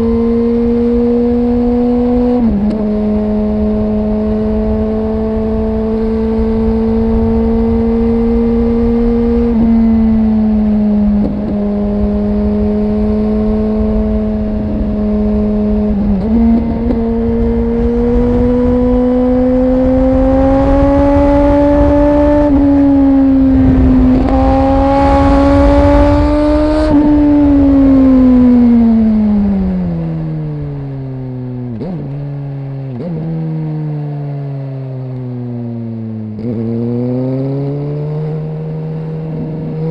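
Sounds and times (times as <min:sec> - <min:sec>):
motorcycle engine: 0:00.0 - 0:39.9
wind rushing: 0:14.2 - 0:30.2.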